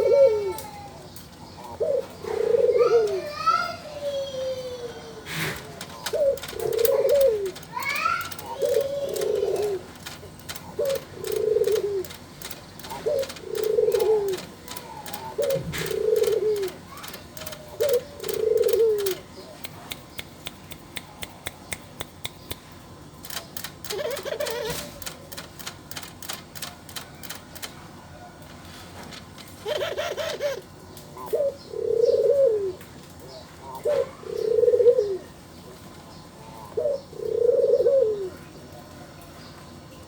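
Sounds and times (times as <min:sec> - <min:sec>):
dove cooing: 0:00.0 - 0:19.6, 0:23.2 - 0:35.4, 0:36.4 - 0:38.5
light regular clicking: 0:05.6 - 0:31.1.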